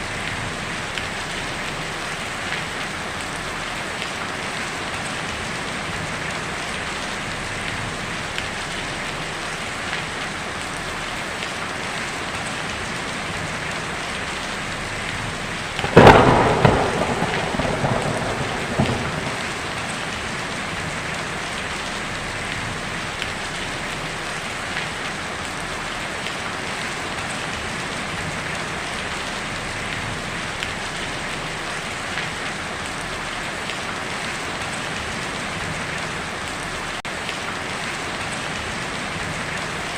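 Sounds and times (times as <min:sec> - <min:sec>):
rain on a tin roof: 0:00.0 - 0:39.9
thunderclap: 0:15.8 - 0:21.4.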